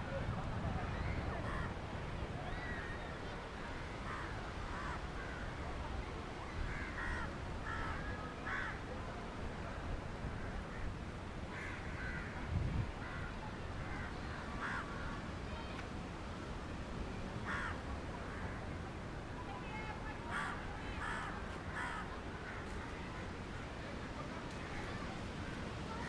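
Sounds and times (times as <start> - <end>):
steady low background noise: 0.0 - 26.0
crows cawing: 6.7 - 8.8, 11.5 - 12.3, 14.6 - 15.2, 17.5 - 17.8, 20.3 - 22.7.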